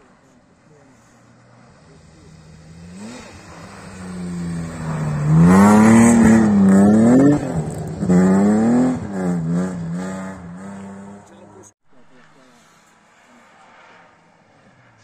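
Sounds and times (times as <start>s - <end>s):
rally car engine revving: 1.0s - 11.7s.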